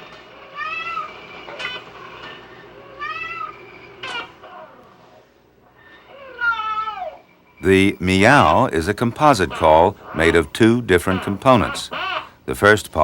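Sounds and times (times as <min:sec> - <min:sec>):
cat meowing: 0:00.5 - 0:01.8, 0:02.8 - 0:04.8, 0:06.0 - 0:07.2.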